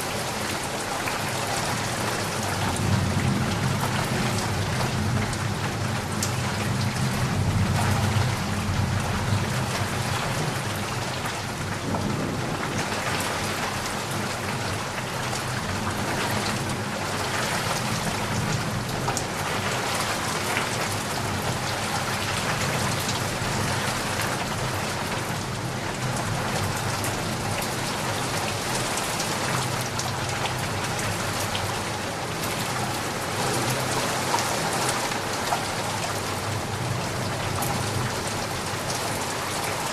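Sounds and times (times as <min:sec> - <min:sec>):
steady rain falling: 0:00.0 - 0:39.9
low thunder rumble: 0:11.5 - 0:16.8.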